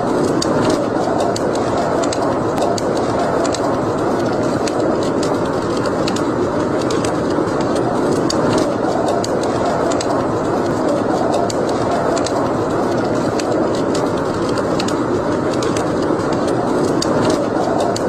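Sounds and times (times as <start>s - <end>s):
fire crackling and popping: 0.0s - 18.0s
steady rushing noise: 0.0s - 18.0s.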